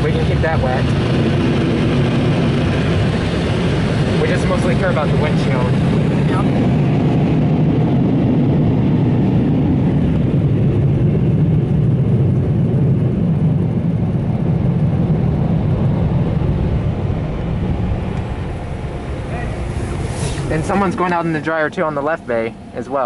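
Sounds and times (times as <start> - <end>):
car wash dryer blowers: 0.0 - 23.0.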